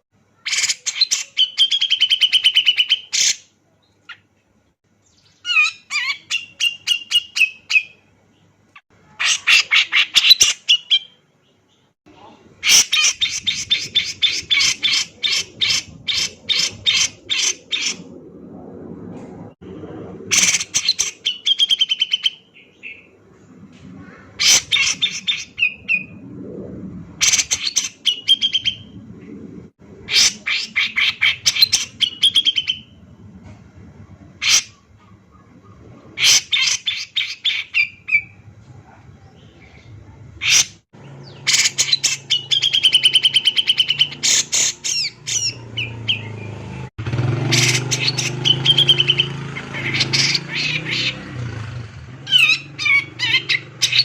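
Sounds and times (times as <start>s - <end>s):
faint low hum: 11.0s - 21.5s
bulbul singing sharp chattering notes: 41.2s - 51.2s.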